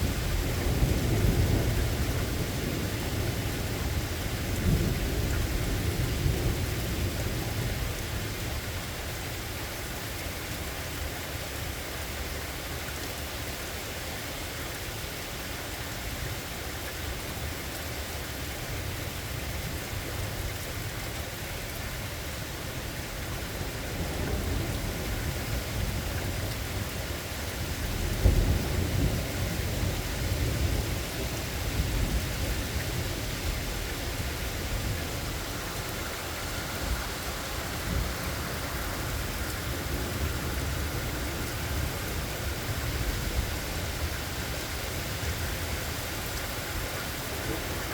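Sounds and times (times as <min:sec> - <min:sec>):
steady rain falling: 0:00.0 - 0:47.9
rolling thunder: 0:27.7 - 0:44.6.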